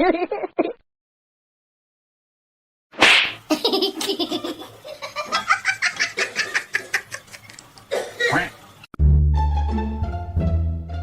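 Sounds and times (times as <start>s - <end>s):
person laughing: 3.5s - 7.6s.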